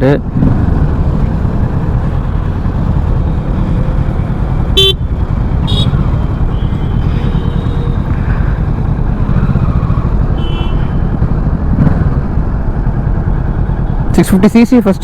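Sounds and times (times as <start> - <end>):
road and wind rumble: 0.0 - 15.0
motorcycle engine running: 0.3 - 15.0
vehicle horn toots: 4.8 - 5.0, 5.6 - 8.0, 10.4 - 11.1
faint long horn: 5.6 - 8.7, 10.3 - 11.1.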